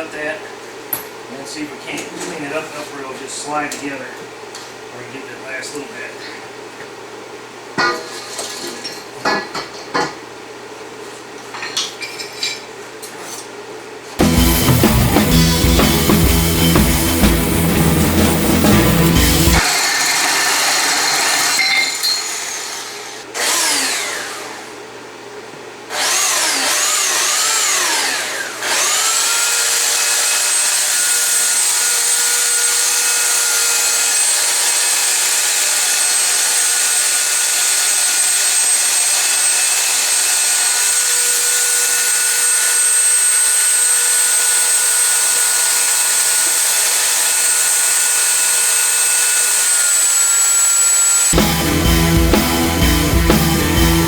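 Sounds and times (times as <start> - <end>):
power tool cutting metal tube: 14.2 - 24.7, 25.9 - 54.0.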